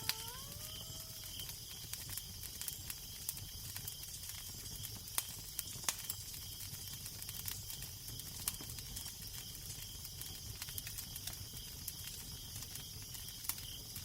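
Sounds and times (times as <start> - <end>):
pitched howl: 0.0 - 1.4
fireplace fire crackling: 0.0 - 14.0.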